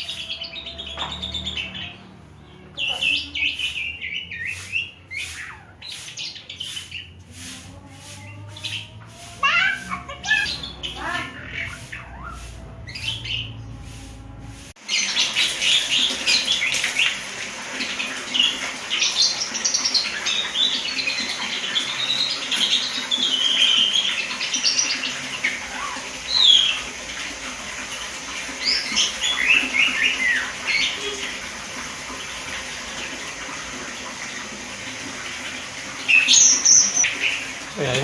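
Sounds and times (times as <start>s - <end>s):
starling singing: 0.0s - 17.2s, 18.3s - 27.0s, 28.6s - 31.5s.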